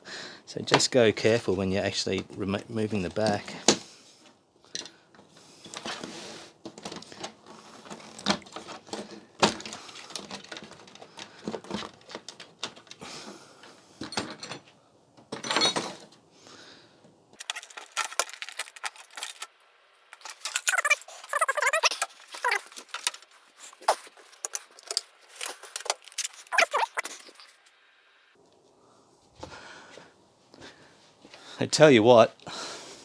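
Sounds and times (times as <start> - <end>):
plastic and metal parts rattling: 8.6 - 13.0, 17.4 - 27.7.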